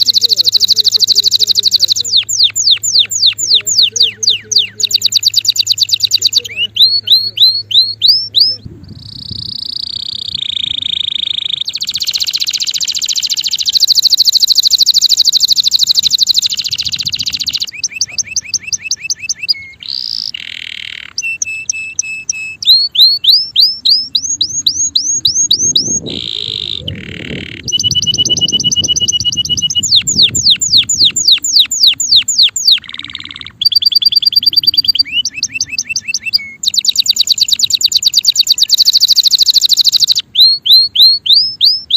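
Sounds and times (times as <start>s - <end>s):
canary singing trills: 0.0s - 41.9s.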